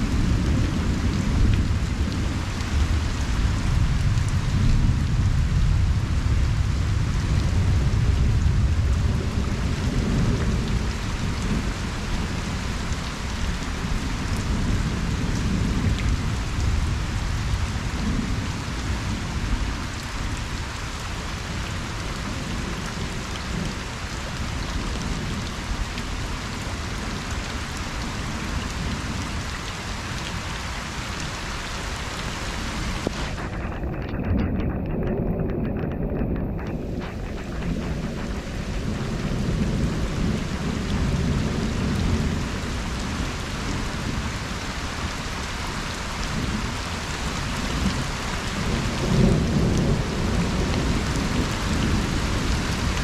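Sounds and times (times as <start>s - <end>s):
rain falling on a pond: 0.0s - 53.0s
distant thunder rumble: 32.5s - 44.5s, 45.8s - 53.0s.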